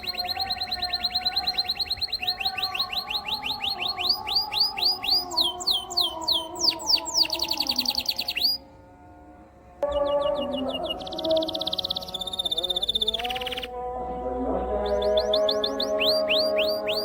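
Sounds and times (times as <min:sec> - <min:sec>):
canary singing: 0:00.0 - 0:17.0.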